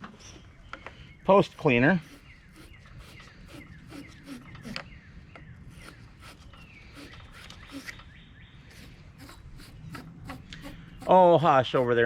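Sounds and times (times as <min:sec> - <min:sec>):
wire brush scraping metal: 0:02.0 - 0:04.8, 0:05.7 - 0:08.1, 0:08.7 - 0:12.0.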